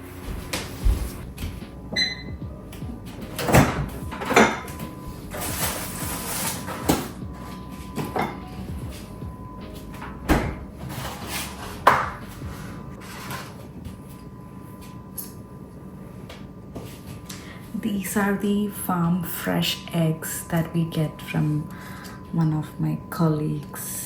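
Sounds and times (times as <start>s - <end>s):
cupboard doors and dishes clattering: 3.1s - 9.0s.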